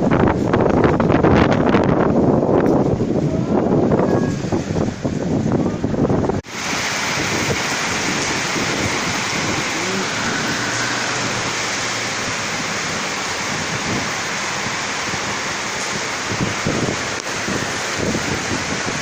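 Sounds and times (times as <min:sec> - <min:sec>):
rain: 0:00.0 - 0:19.0
strong wind: 0:00.0 - 0:19.0.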